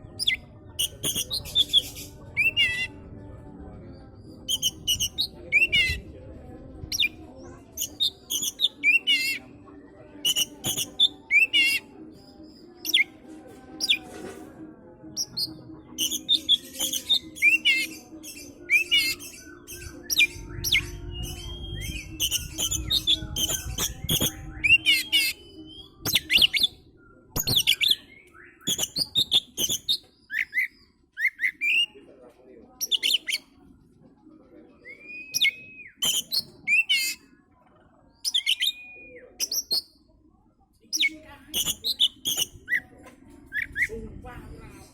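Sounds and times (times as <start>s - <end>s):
bird singing chirps and whistles: 0.2s - 2.9s, 4.5s - 6.0s, 10.2s - 11.8s, 15.2s - 32.0s, 32.8s - 33.4s, 34.8s - 37.2s, 38.2s - 40.0s, 41.0s - 42.8s.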